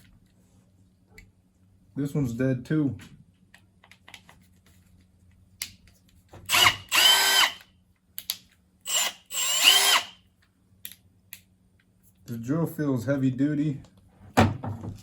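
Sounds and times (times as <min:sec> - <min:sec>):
cordless drill motor spinning: 0:06.5 - 0:07.7, 0:08.9 - 0:10.2.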